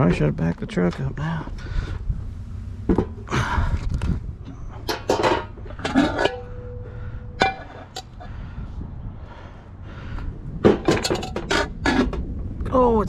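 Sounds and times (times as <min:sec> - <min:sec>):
scrap metal and glass clanking: 0:04.5 - 0:08.1, 0:10.6 - 0:12.2
metal piece ringing: 0:04.8 - 0:08.1.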